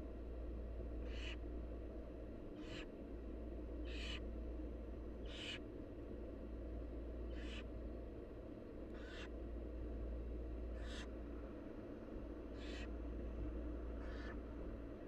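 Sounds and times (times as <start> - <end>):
steady low hum: 0.0 - 15.0
owl chicks hissing calls: 1.0 - 1.4, 2.6 - 2.9, 3.9 - 4.2, 5.3 - 5.6, 7.3 - 7.7, 9.0 - 9.3, 10.8 - 11.1, 12.5 - 12.9.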